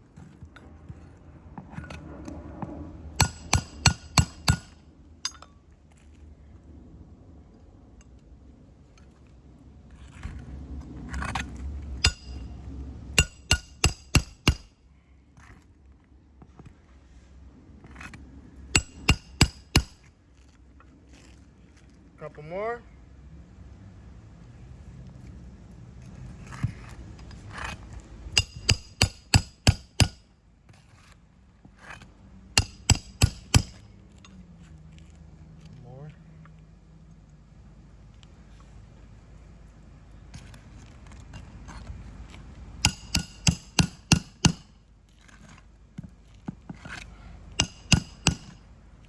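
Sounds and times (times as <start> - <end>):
hammer blows on metal: 12.0 - 12.5, 13.2 - 14.8, 18.8 - 20.0, 28.4 - 30.2, 32.6 - 33.8, 42.8 - 44.7, 47.5 - 48.6.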